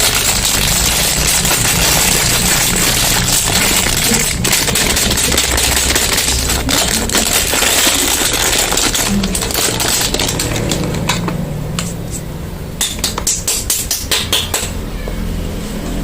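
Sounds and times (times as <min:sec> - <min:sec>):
packaging crinkling: 0:00.0 - 0:11.2.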